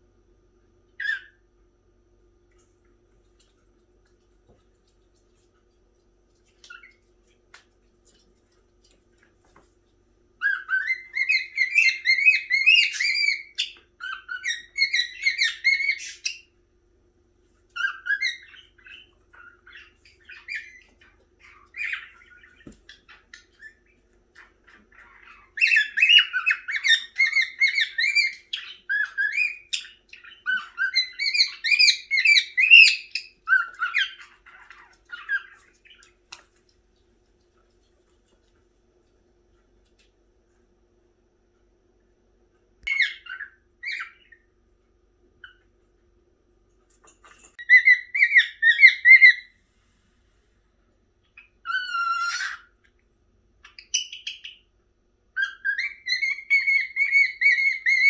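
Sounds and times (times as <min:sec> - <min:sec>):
cockatiel chirping and whistling: 0:01.0 - 0:01.4, 0:10.4 - 0:16.5, 0:17.8 - 0:36.0, 0:42.9 - 0:44.4, 0:47.6 - 0:49.5, 0:51.4 - 0:52.7, 0:53.6 - 0:54.6, 0:55.4 - 0:58.0.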